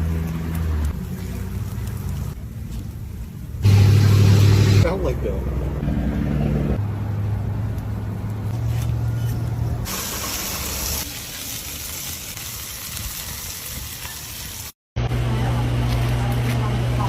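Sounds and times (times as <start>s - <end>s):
loud hiss of steam or spray: 9.9s - 11.1s.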